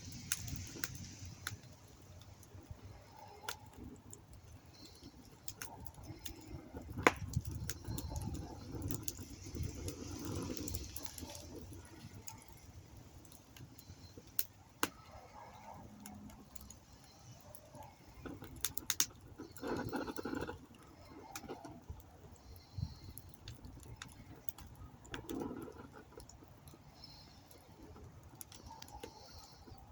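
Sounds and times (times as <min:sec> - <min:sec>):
campfire pops: 0:00.0 - 0:29.9.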